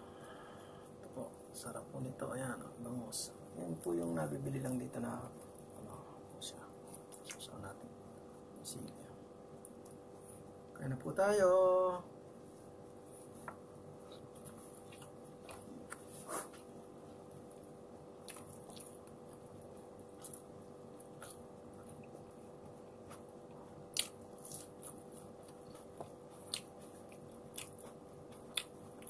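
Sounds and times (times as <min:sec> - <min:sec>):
steady low hum: 0:00.0 - 0:29.0
chewing and mouth smacks: 0:06.9 - 0:07.5, 0:14.0 - 0:16.6, 0:18.2 - 0:29.0.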